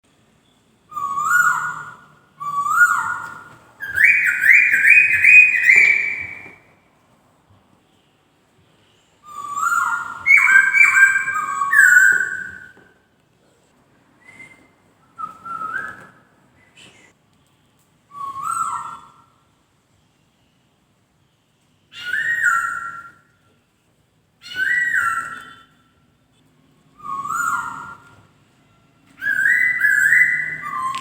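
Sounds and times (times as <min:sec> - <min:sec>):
laughingthrush singing whistled phrases: 0:00.9 - 0:06.6, 0:09.2 - 0:12.8, 0:21.9 - 0:23.3, 0:24.5 - 0:25.8, 0:27.0 - 0:28.1, 0:29.2 - 0:31.0.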